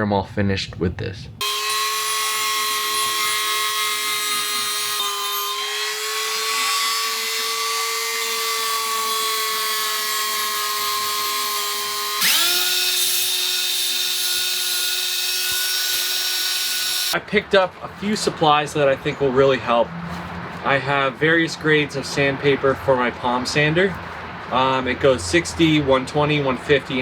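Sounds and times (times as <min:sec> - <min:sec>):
electric drill sanding metal: 0:01.4 - 0:17.2
power tool whine: 0:01.4 - 0:17.2.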